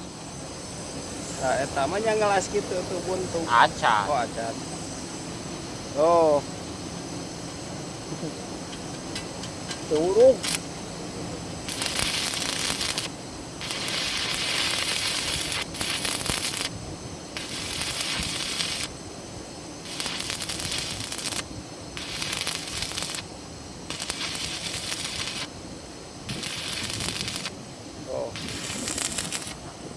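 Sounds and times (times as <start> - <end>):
welding arc crackling: 9.1 - 10.7, 11.6 - 19.2, 19.8 - 25.6, 26.2 - 29.7.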